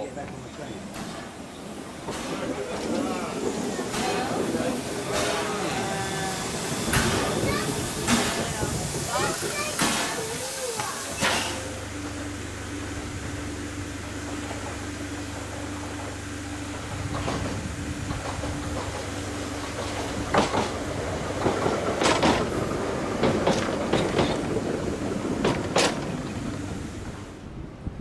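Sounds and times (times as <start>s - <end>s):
train wheels clacking over rail joints: 0.0s - 11.7s, 17.0s - 26.8s
electric train passing: 0.0s - 28.0s.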